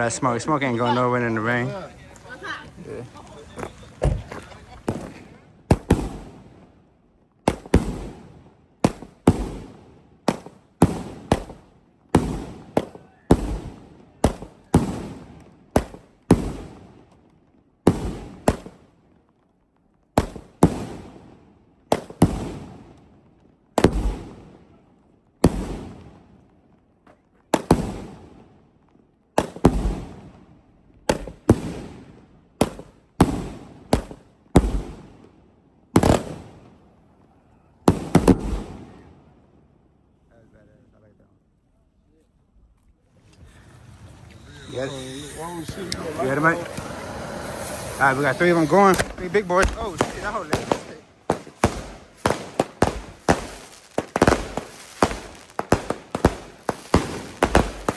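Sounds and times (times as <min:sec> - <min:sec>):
fireworks booming with echo: 0:00.0 - 0:06.8, 0:07.4 - 0:17.2, 0:17.8 - 0:19.0, 0:20.1 - 0:23.0, 0:23.7 - 0:24.7, 0:25.4 - 0:26.4, 0:27.5 - 0:28.6, 0:29.3 - 0:37.0, 0:37.8 - 0:39.3, 0:43.2 - 0:57.9.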